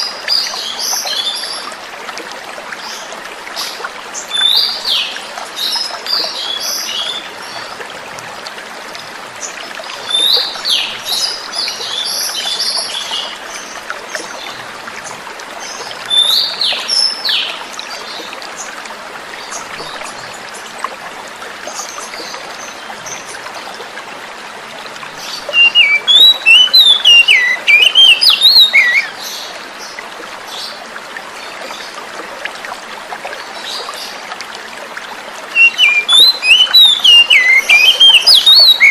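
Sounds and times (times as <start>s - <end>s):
flowing water hiss: 0.0s - 38.9s
bird singing: 25.2s - 29.2s, 35.6s - 38.9s.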